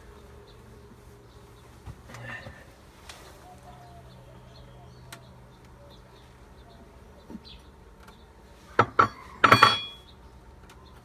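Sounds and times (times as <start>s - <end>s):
hard objects clinking and knocking: 8.8s - 10.0s.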